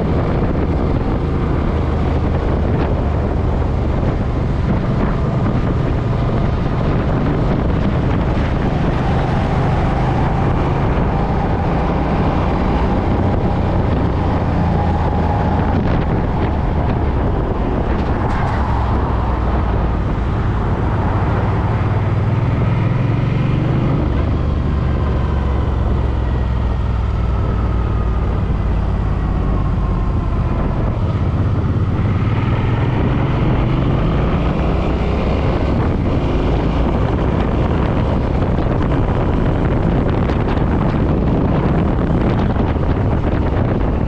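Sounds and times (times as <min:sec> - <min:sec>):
motorcycle engine running: 0:00.0 - 0:18.2
wind buffeting microphone: 0:00.0 - 0:44.0.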